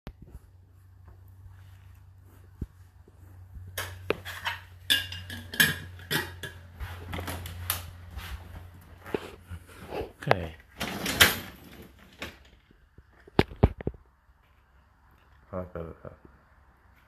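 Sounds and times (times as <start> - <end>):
dishes and cutlery clattering: 3.8 - 6.7.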